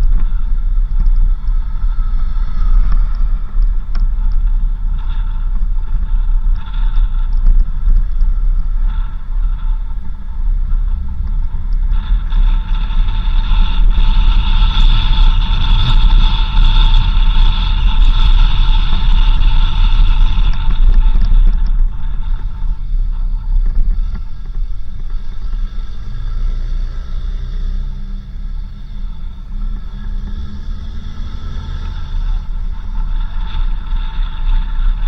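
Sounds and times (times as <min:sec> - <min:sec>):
engine and tyres rumbling: 0:00.0 - 0:35.0
steady high whine: 0:00.0 - 0:35.0.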